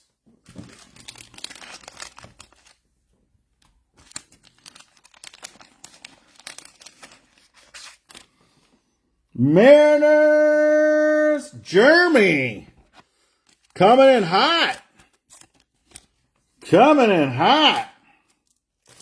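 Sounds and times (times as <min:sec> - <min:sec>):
card wrappers crinkling and tearing: 0:00.5 - 0:02.9, 0:03.6 - 0:08.7, 0:12.8 - 0:13.8, 0:14.8 - 0:16.7, 0:18.2 - 0:19.0.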